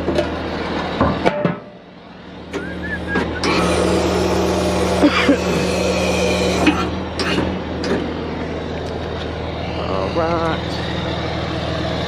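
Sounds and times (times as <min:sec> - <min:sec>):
diesel truck engine idling: 0:02.0 - 0:12.0.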